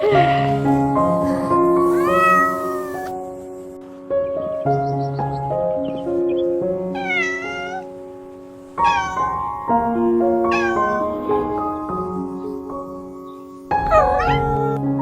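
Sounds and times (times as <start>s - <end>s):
background music: 0.0s - 15.0s
cat meowing: 1.8s - 3.2s, 6.8s - 8.0s, 8.8s - 12.0s.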